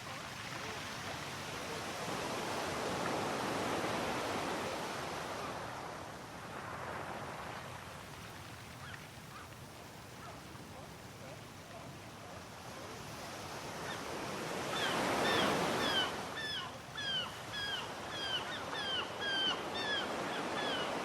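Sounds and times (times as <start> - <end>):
sea waves breaking on shore: 0.0 - 21.0
faint bird calls: 13.8 - 21.0.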